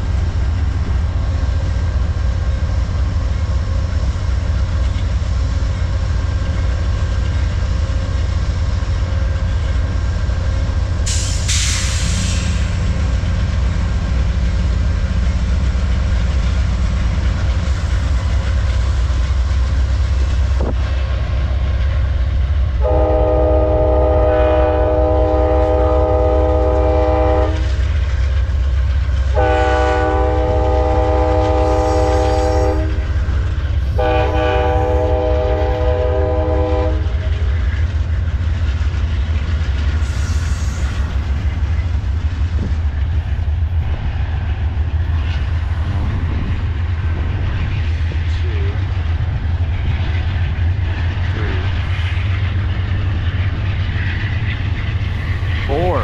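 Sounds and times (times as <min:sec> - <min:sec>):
train rumbling and clattering: 0:00.0 - 0:56.0
locomotive air horn blasts: 0:22.8 - 0:27.7, 0:29.4 - 0:33.0, 0:33.9 - 0:37.2.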